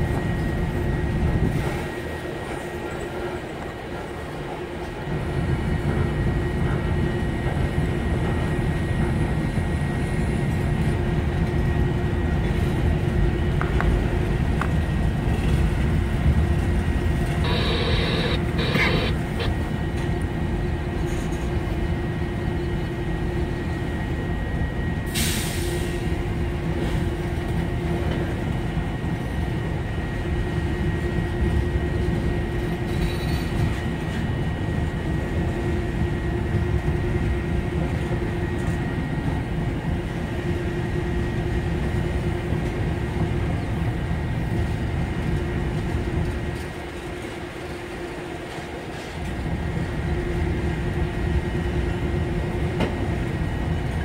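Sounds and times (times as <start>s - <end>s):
rumble of train wheels on rail: 0.0s - 54.0s.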